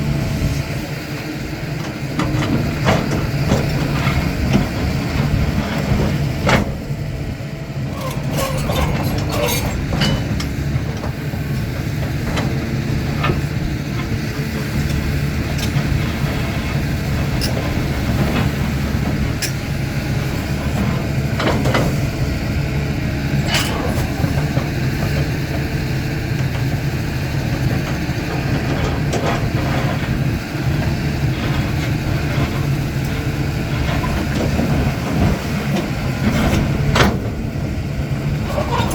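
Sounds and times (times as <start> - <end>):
excavator diesel engine running: 0.0 - 38.9
digging clanks and knocks: 7.9 - 22.0, 23.4 - 25.3, 38.4 - 38.9.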